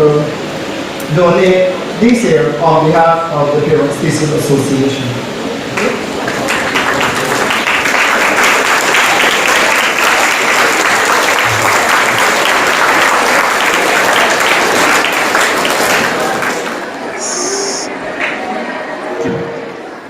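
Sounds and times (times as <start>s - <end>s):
crowd applauding: 5.7s - 18.9s.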